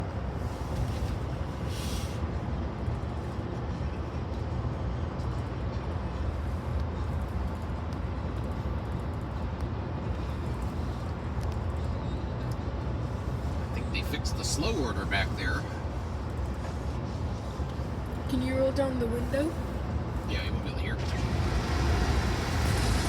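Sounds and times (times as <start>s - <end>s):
freight train rumbling past: 12.6s - 23.0s.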